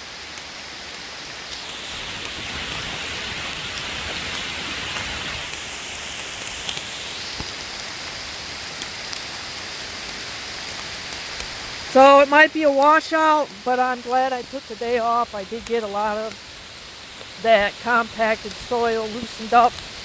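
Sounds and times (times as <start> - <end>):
heavy rain pouring: 0.0 - 20.0
raindrops ticking: 0.1 - 20.0.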